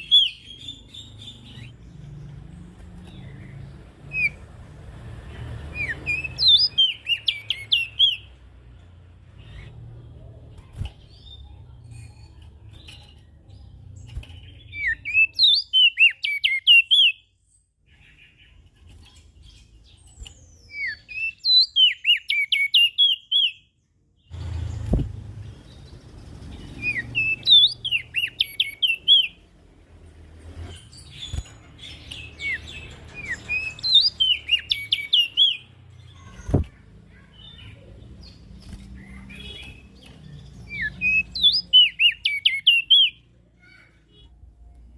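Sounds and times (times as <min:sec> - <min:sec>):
bird twittering: 0:03.1 - 0:04.4, 0:05.7 - 0:08.3, 0:20.4 - 0:23.6, 0:24.3 - 0:29.4, 0:30.7 - 0:36.4, 0:37.3 - 0:43.2.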